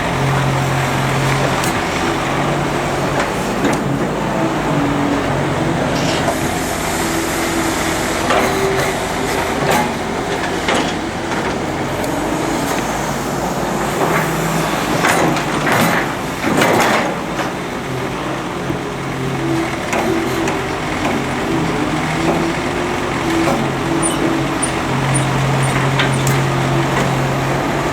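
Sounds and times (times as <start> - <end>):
excavator engine running: 0.0 - 27.9
bucket clanking and scraping: 20.0 - 27.9.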